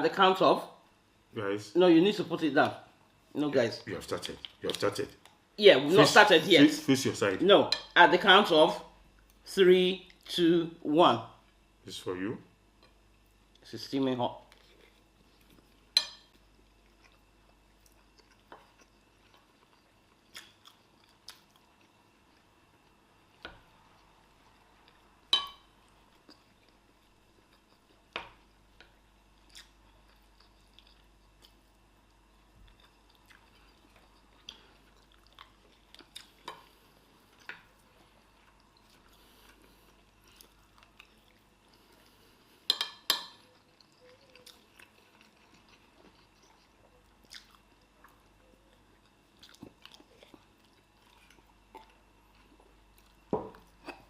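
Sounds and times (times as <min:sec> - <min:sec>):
quiet chewing and biting: 0:14.4 - 0:54.0.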